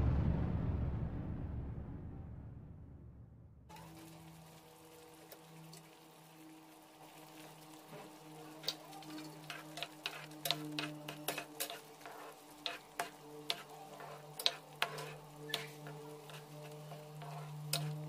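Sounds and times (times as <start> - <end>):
ladle scraping a pan: 7.7 - 18.0.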